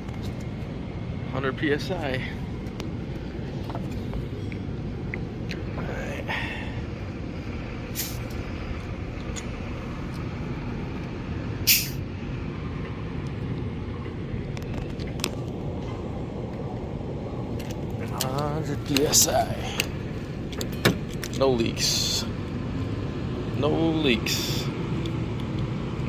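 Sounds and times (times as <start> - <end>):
short sharp hisses: 7.9 - 8.3, 11.6 - 12.0.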